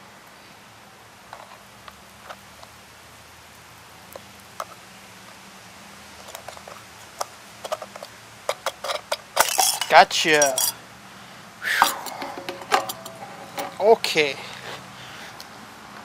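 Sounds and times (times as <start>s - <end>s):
light clicks and taps of tools: 6.2s - 10.8s, 11.8s - 13.8s.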